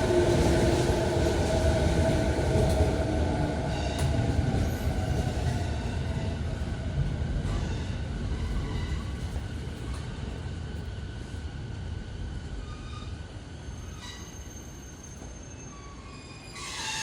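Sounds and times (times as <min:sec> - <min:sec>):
electric train rumble and motor whine: 0:00.0 - 0:17.0.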